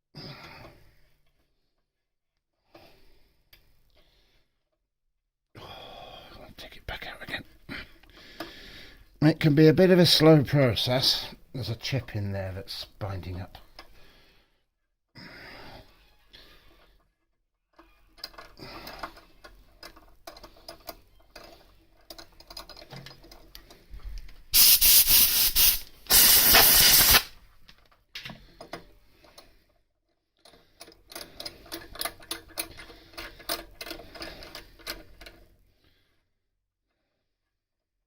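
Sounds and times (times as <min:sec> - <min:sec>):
compressed air blasts: 0:24.6 - 0:27.4.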